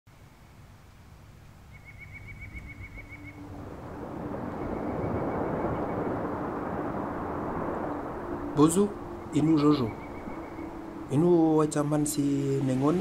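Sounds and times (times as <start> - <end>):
steady rushing noise: 2.4 - 13.0
bird trilling high notes: 8.9 - 11.7.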